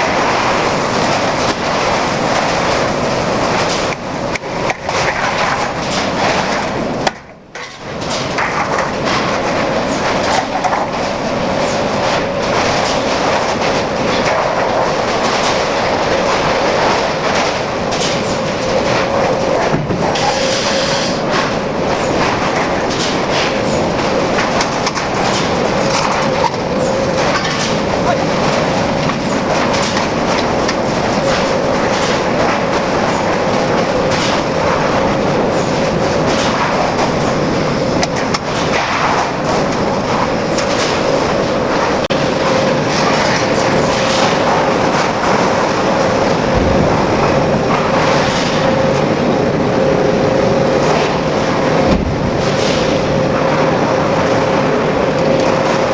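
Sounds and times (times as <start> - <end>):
machinery running: 0.0 - 55.9.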